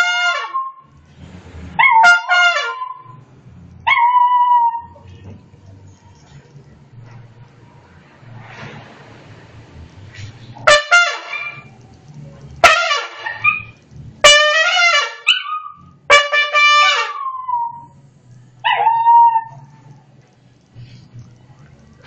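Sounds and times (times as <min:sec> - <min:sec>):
dog blowing trumpet: 0:00.0 - 0:00.8, 0:01.8 - 0:03.2, 0:10.6 - 0:11.7, 0:12.6 - 0:17.8.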